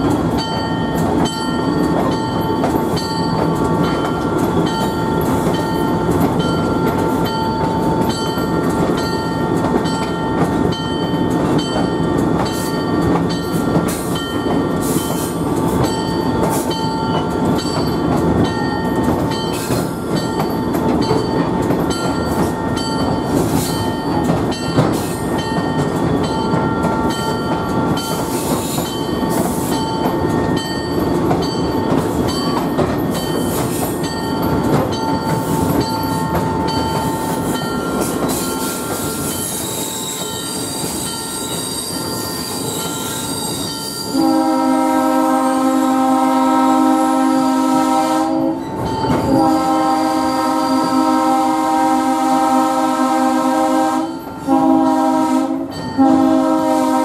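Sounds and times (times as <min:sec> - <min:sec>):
wheels clicking on track: 0:00.0 - 0:44.1
train rumble: 0:00.0 - 0:57.0.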